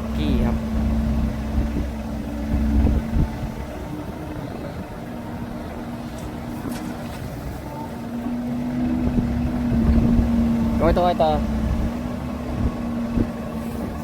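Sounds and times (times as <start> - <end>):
truck engine droning: 0.0 - 14.0.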